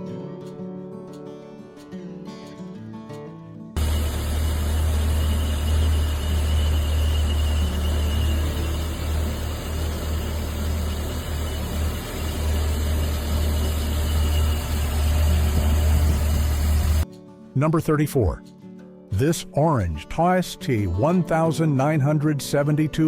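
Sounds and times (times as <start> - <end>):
car engine low rumble: 3.8 - 17.0.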